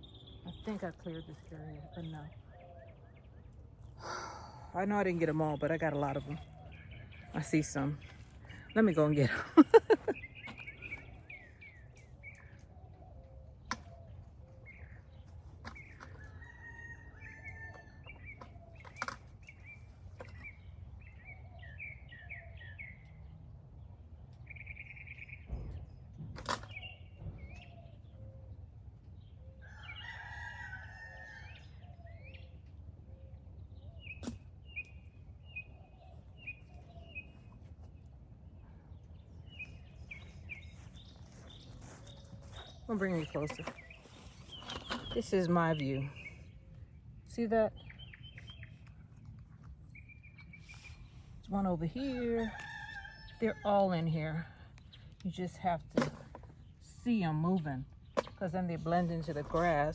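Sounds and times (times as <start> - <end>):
rooster crowing: 16.2 - 18.0, 29.6 - 31.7, 52.4 - 53.7.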